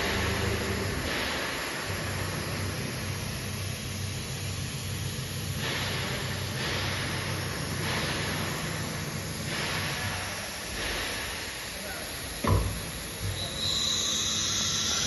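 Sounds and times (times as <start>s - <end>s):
cnc router humming: 0.0s - 5.5s, 11.7s - 15.0s.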